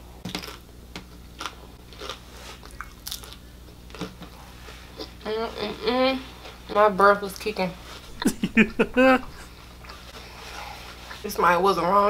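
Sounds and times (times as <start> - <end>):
crunchy chewing: 0.3 - 5.2.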